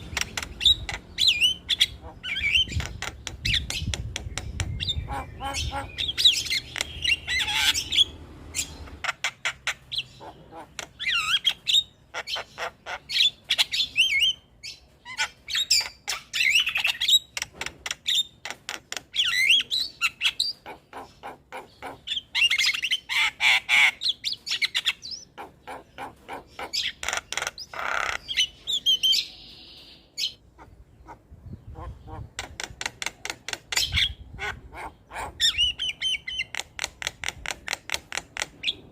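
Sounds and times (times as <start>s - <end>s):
myna bird singing: 0.0s - 38.9s.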